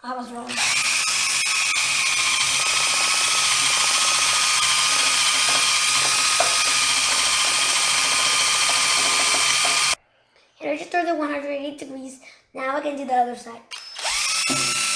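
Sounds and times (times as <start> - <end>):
power drill grinding glass: 0.5 - 10.0, 13.7 - 14.9.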